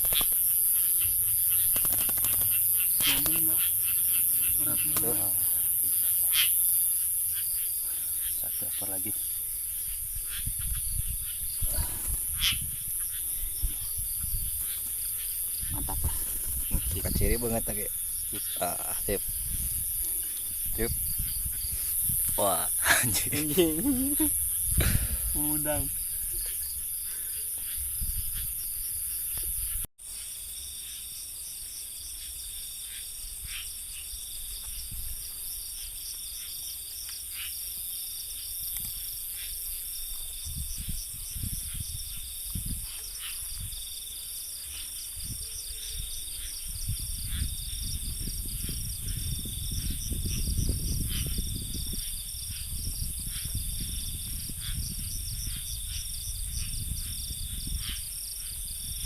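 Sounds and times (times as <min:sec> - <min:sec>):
fast pulsing insect chirp: 0:00.0 - 0:59.0
high-pitched cricket trill: 0:00.0 - 0:59.0.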